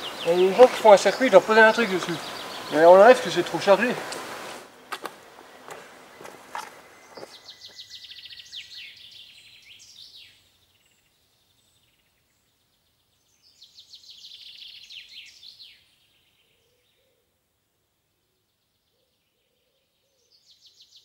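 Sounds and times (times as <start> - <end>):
songbird trilling: 0.0 - 3.8, 5.5 - 12.2.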